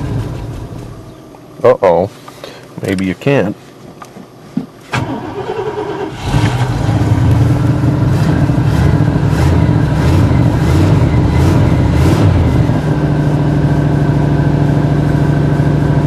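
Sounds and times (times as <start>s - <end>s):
engine running rough: 0.0s - 1.5s, 5.0s - 16.0s.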